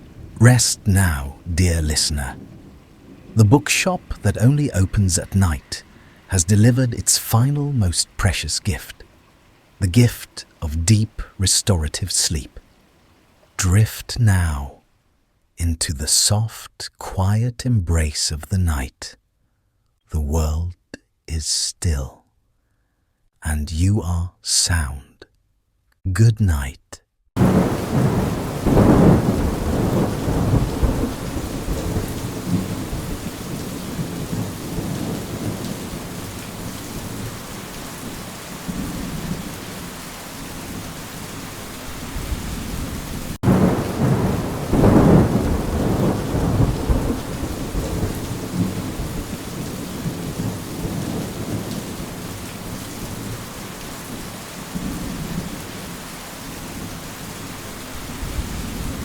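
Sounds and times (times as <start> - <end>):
steady rain: 0.0 - 15.2, 27.4 - 59.0
thunder rolling: 27.4 - 39.9, 42.1 - 52.4.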